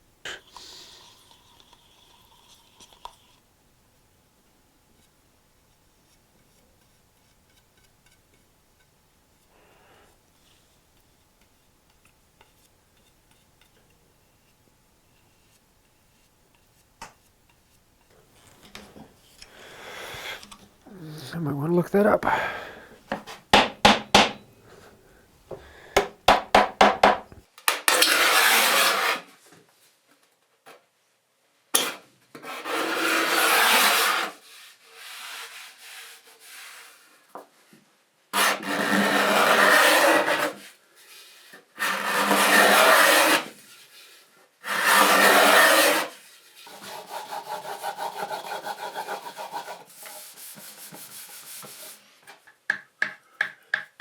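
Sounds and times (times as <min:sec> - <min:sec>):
hand tool rubbing along wood: 0:28.1 - 0:29.2, 0:32.5 - 0:37.0, 0:38.4 - 0:52.1.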